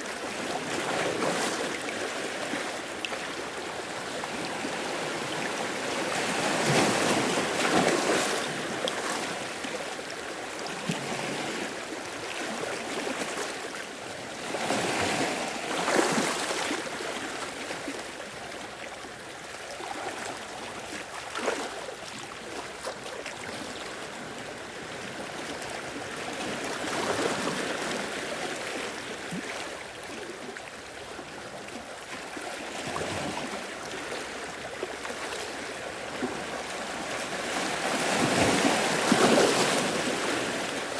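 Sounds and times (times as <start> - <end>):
ocean waves breaking: 34.2 - 40.9.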